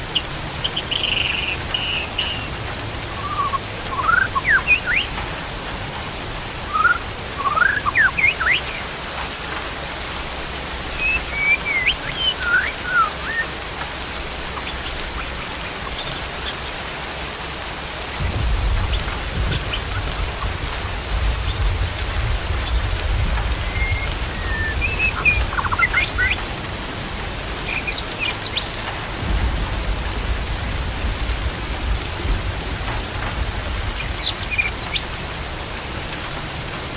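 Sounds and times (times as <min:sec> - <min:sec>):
steady rain: 0:00.0 - 0:36.9
birds whistled call notes: 0:00.1 - 0:05.1, 0:06.6 - 0:08.9, 0:10.9 - 0:13.6, 0:14.5 - 0:16.8, 0:18.8 - 0:26.5, 0:27.2 - 0:28.8, 0:33.4 - 0:35.2
low rumble: 0:18.2 - 0:25.6, 0:29.0 - 0:33.8
thin high bird chirps: 0:23.6 - 0:26.4.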